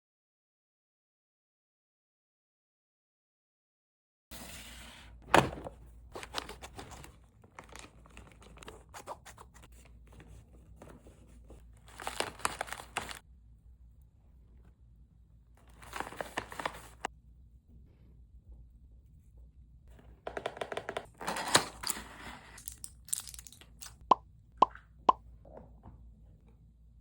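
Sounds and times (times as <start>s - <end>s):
food packaging crinkling and tearing: 6.2s - 9.5s, 11.9s - 13.2s, 21.1s - 24.0s.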